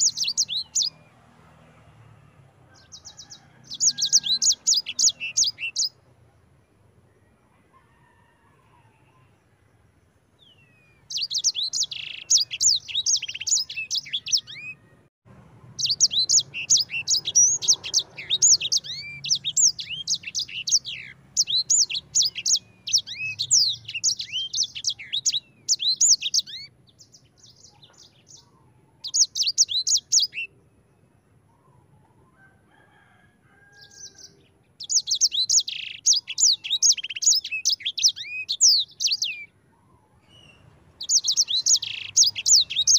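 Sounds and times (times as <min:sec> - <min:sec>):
songbird rolling song: 0:15.8 - 0:32.3, 0:33.8 - 0:42.9.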